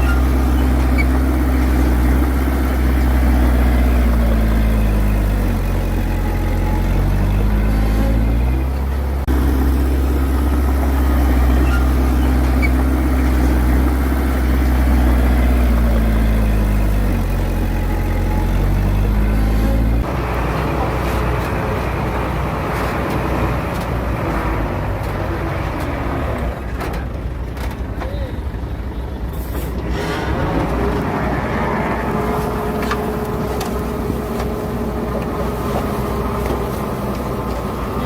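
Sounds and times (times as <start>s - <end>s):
heavy diesel engine working: 0.0s - 38.0s.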